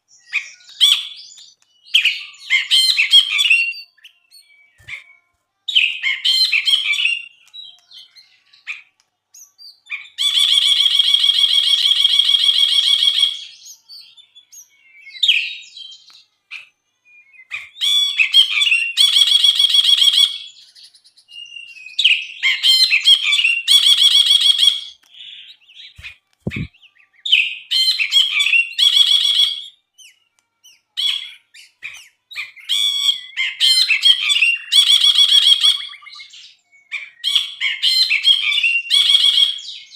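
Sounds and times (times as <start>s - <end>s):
bulbul singing chattering trills: 25.2s - 27.6s.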